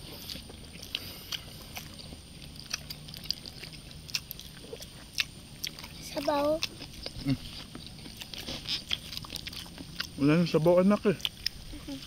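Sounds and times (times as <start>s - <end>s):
crunchy chewing: 0.0s - 12.0s
mouth sounds: 4.6s - 9.0s.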